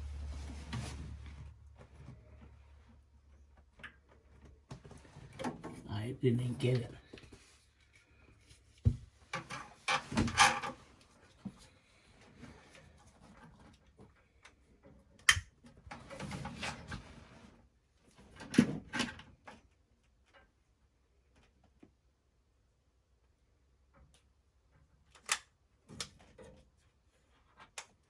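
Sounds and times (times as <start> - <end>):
rubbing and rustling: 0.0 - 3.0.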